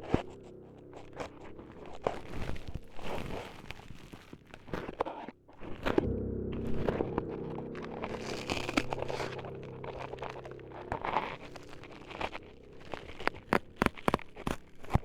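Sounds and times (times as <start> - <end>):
close crinkling and crunching: 0.0 - 15.0
low steady drone: 0.0 - 15.0.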